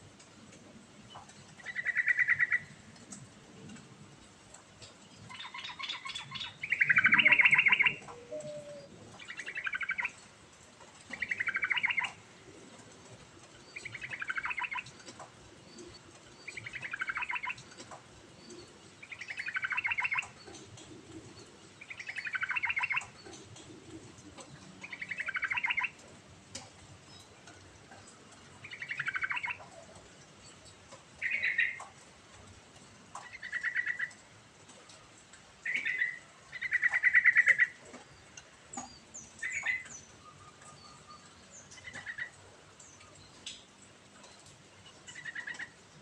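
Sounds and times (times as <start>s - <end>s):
bird singing warbled phrases: 1.5s - 2.7s, 5.2s - 10.2s, 11.1s - 12.2s, 13.7s - 15.1s, 15.7s - 17.8s, 18.4s - 20.6s, 21.3s - 23.4s, 24.4s - 26.0s, 28.0s - 29.8s, 31.2s - 31.9s, 33.2s - 34.2s, 35.6s - 43.6s, 44.2s - 45.8s.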